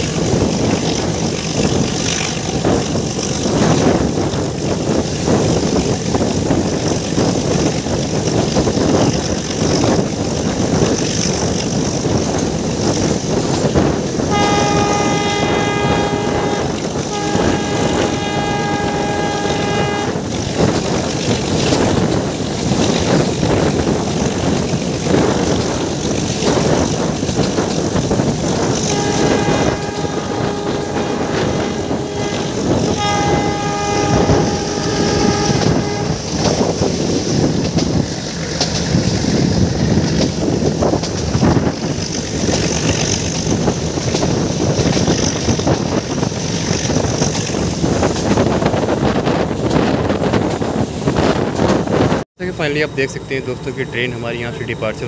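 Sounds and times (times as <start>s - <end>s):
train coaches rumbling on track: 0.0s - 55.0s
locomotive horn blasts: 0.1s - 5.5s, 13.7s - 22.1s, 28.2s - 37.0s.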